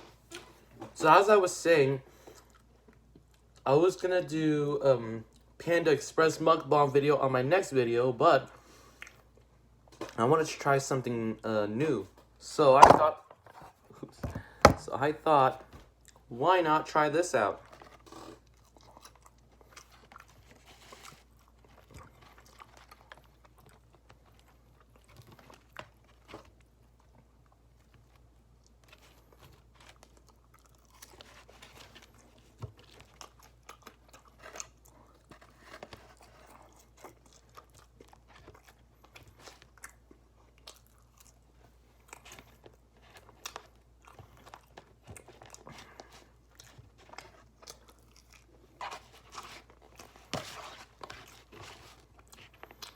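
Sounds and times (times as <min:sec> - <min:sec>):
person chewing food: 0:02.1 - 0:03.6, 0:08.6 - 0:10.2, 0:17.6 - 0:52.9.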